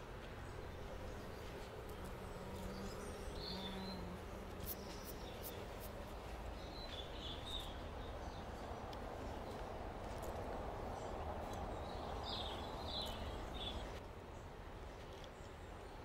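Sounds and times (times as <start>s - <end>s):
bird chirping: 0.4s - 9.6s, 10.9s - 14.0s.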